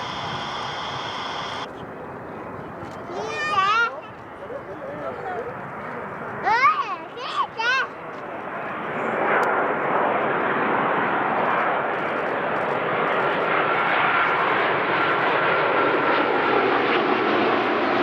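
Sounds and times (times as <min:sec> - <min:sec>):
jet engines roaring past: 0:00.0 - 0:02.2, 0:08.4 - 0:18.0.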